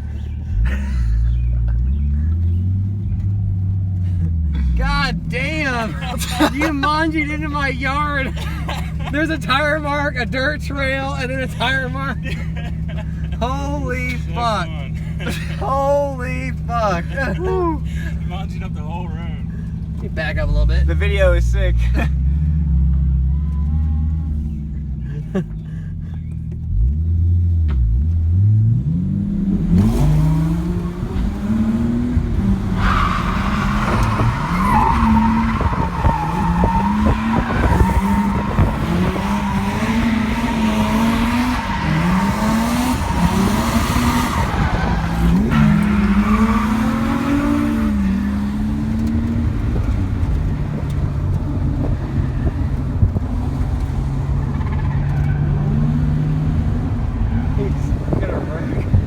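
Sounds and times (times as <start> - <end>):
car engine revving: 0.0 - 59.0
tire squeal: 32.4 - 52.8, 53.6 - 58.9.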